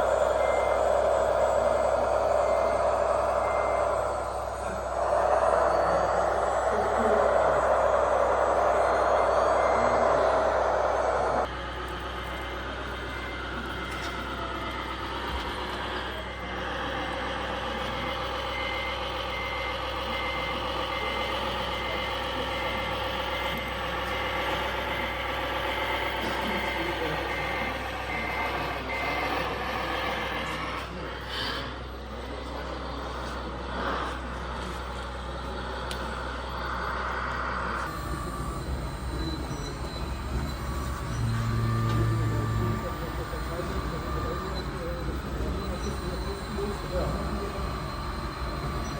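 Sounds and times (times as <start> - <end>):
loud noise: 0.0 - 11.8
diesel engine running: 0.0 - 48.9
reversing beeper: 0.0 - 48.9.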